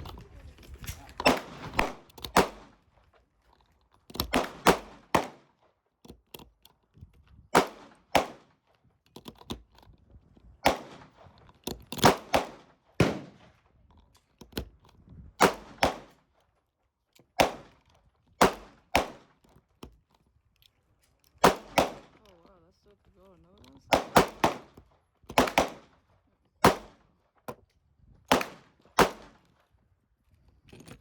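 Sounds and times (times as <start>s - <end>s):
pistol shots: 0.8s - 2.8s, 4.3s - 5.5s, 7.6s - 8.5s, 10.6s - 11.2s, 12.0s - 13.5s, 15.4s - 16.2s, 17.4s - 17.8s, 18.4s - 19.3s, 21.4s - 22.2s, 23.9s - 26.0s, 26.6s - 27.0s, 28.3s - 29.5s.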